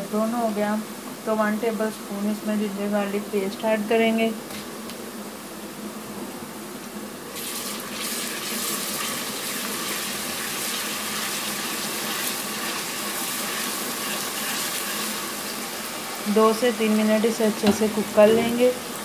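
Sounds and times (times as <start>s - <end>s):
onions sizzling in hot oil: 7.3s - 19.0s
stirring in a pan: 8.0s - 16.6s.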